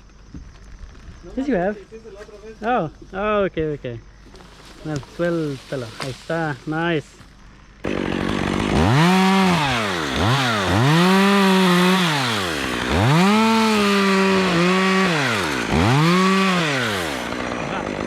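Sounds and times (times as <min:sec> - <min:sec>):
chainsaw idling and revving: 0:07.8 - 0:18.0.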